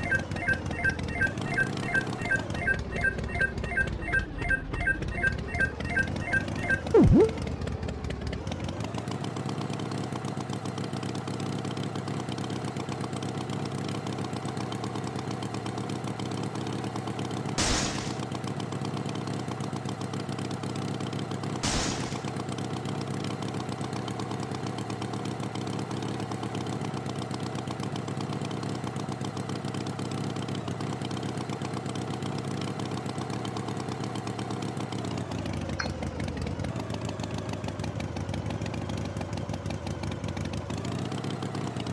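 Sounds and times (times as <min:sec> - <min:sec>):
short bursts of noise: 0:07.0 - 0:07.4, 0:17.6 - 0:18.2, 0:21.6 - 0:22.3.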